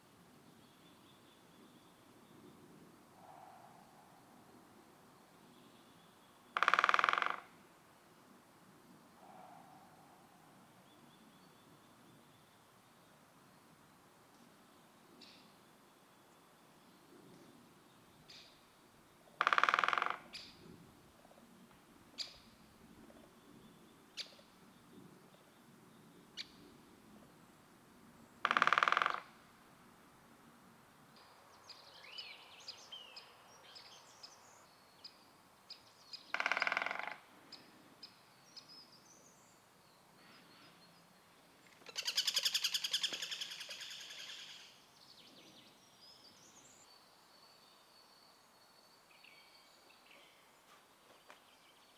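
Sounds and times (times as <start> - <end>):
woodpecker drumming: 6.5 - 7.6, 19.4 - 20.5, 28.4 - 29.3, 36.3 - 37.2
small bird calls: 31.2 - 48.5.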